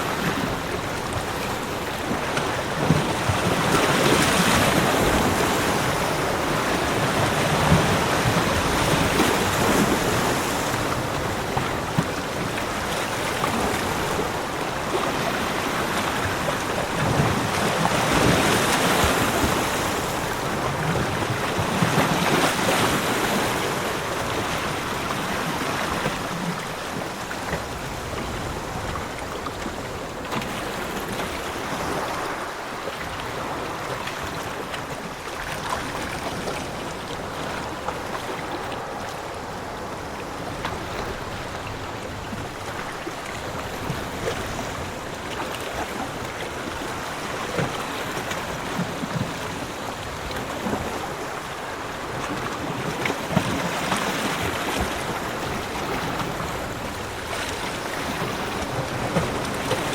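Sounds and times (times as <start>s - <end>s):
sea waves washing onto beach: 0.0s - 59.9s.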